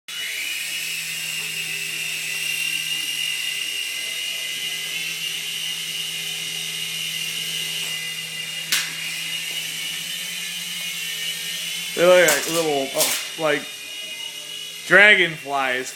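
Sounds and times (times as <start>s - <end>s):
small helicopter motors whining: 0.1s - 15.9s
sharp click: 8.7s - 9.0s.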